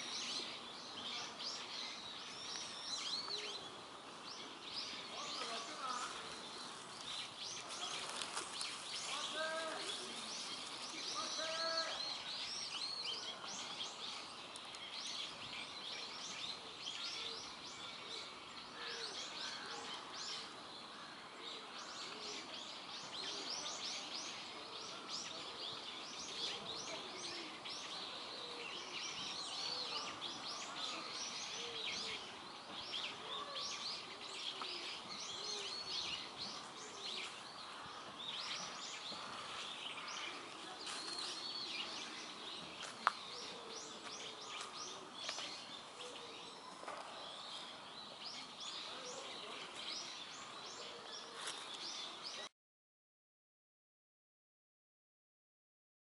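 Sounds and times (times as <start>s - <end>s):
small birds chirping: 0.0s - 52.5s.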